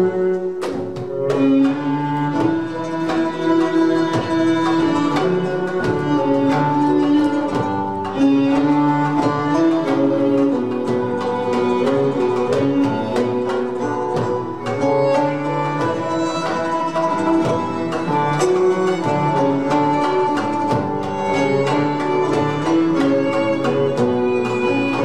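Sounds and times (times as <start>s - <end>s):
violins and plucked strings: 0.0s - 25.0s.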